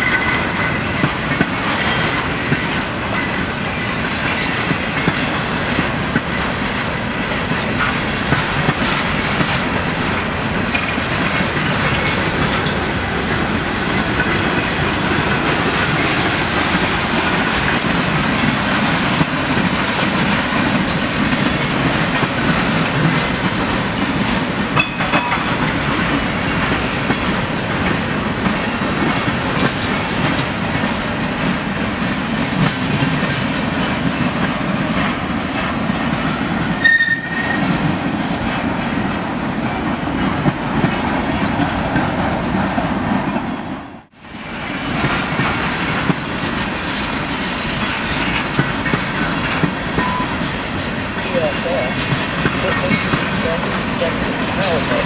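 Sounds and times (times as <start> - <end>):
wheels clacking over rail joints: 0.0 - 43.5, 44.5 - 55.0
freight train rumbling on rails: 0.0 - 55.0
high wheel squeal: 1.7 - 2.6, 36.8 - 37.7.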